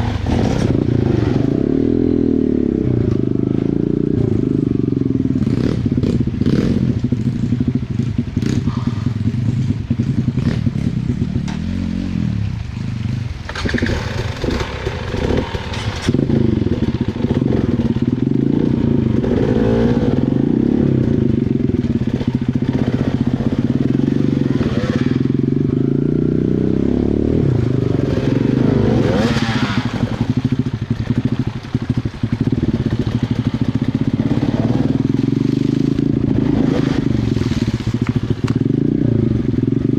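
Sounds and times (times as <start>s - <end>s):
dirt bike engine revving: 13.0s - 39.9s.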